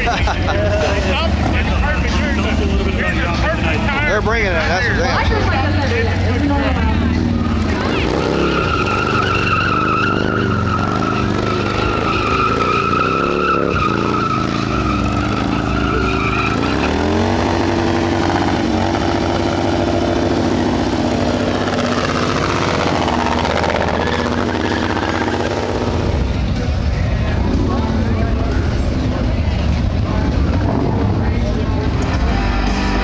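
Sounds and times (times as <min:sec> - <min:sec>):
motorcycle engine revving: 0:00.0 - 0:33.0
tyre squeal: 0:07.3 - 0:26.4.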